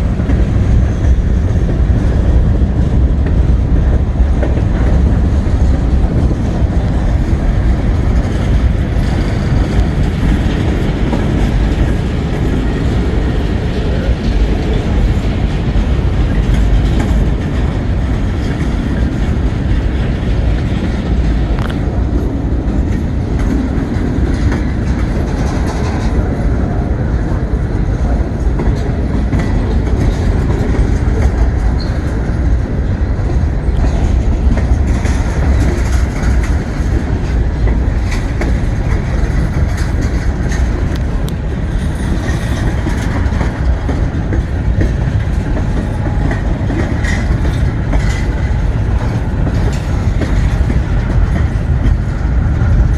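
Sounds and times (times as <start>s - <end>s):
freight train rumbling past: 0.0s - 52.9s
train wheels clacking over rails: 0.0s - 52.9s.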